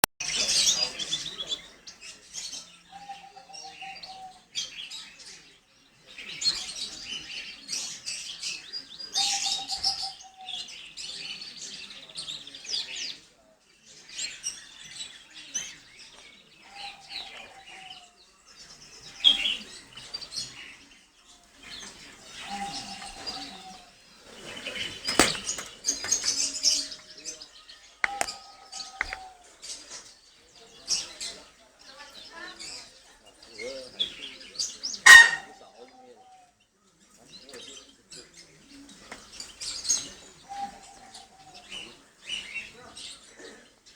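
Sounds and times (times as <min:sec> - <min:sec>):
canary chirps and trills: 0:00.0 - 0:43.9
sharp click: 0:28.0 - 0:28.4.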